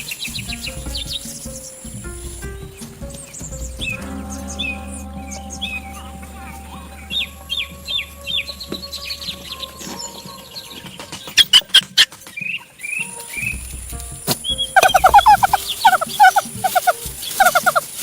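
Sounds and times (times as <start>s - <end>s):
bird chirping falling calls: 14.4s - 18.0s.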